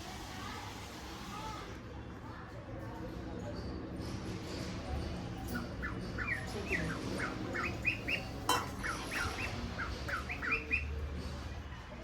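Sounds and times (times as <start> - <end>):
small bird chirping: 5.6 - 11.0.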